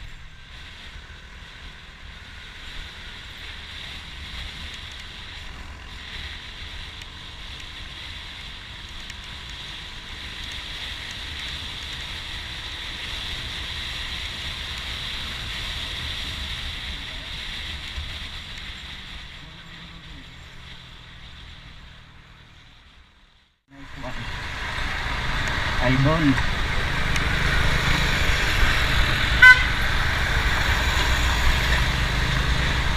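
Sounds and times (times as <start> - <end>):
wind rushing over microphone: 23.8 - 32.9.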